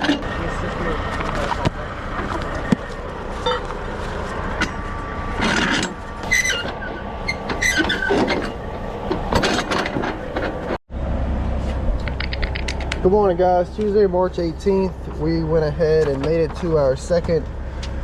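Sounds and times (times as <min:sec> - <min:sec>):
heavy vehicle engine rumbling: 0:00.0 - 0:18.0
clinks and short squeaks: 0:03.4 - 0:03.8, 0:05.4 - 0:08.6.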